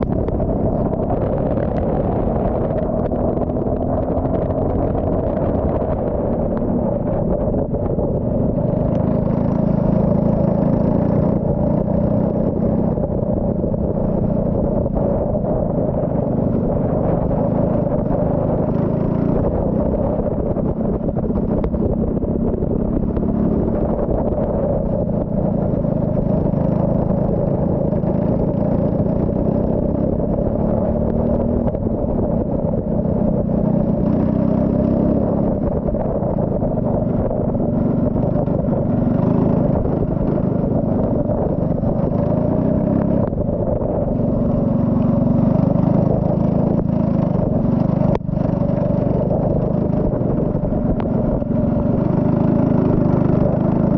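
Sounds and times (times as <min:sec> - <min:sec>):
race car engine running: 0:00.0 - 0:53.9.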